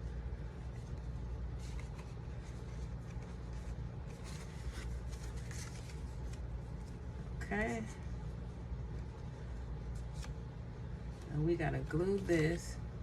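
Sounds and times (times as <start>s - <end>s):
steady low hum: 0.0s - 13.0s
paper rustling and scraping: 0.4s - 8.0s.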